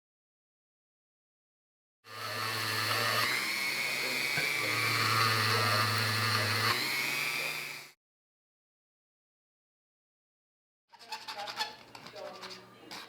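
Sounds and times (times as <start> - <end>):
power tool motor whining: 2.1 - 8.0.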